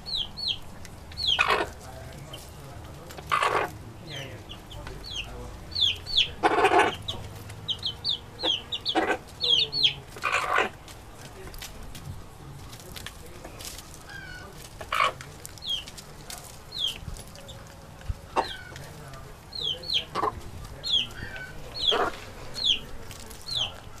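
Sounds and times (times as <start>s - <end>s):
chickens clucking: 0.0s - 24.0s
chicken squawks: 1.2s - 1.8s, 3.3s - 3.8s, 5.8s - 7.2s, 8.0s - 10.8s, 14.1s - 15.9s, 18.3s - 18.8s, 19.8s - 22.8s.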